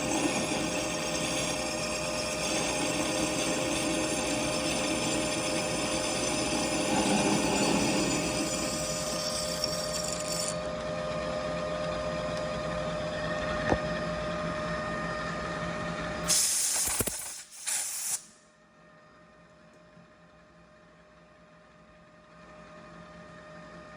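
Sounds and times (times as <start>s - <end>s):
machine tool motor hum: 0.0s - 11.0s.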